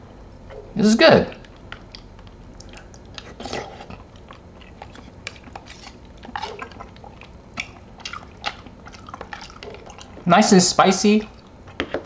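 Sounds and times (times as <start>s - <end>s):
person chewing wet smacks: 1.3s - 10.3s.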